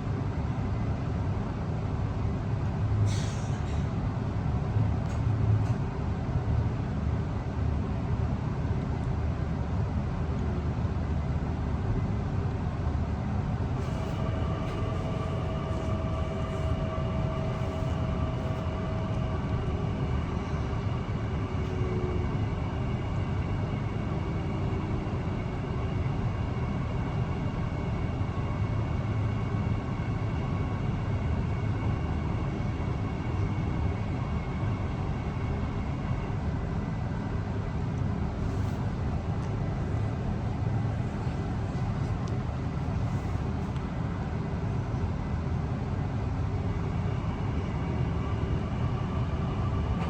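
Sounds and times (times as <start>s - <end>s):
electric train running: 13.7s - 36.8s, 46.5s - 50.0s.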